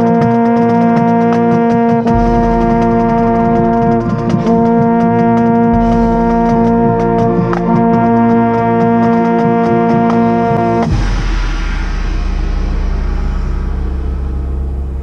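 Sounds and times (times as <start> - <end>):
baritone horn: 0.0 - 11.3
marching band brass chords: 0.0 - 15.0.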